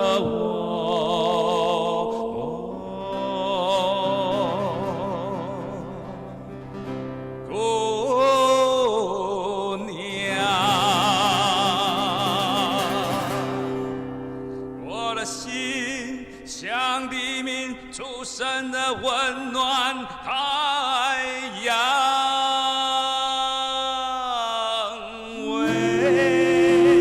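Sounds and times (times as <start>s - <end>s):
opera-style singing with vibrato: 0.0s - 6.4s, 7.5s - 14.0s, 14.9s - 27.0s
sustained accompaniment: 25.6s - 27.0s.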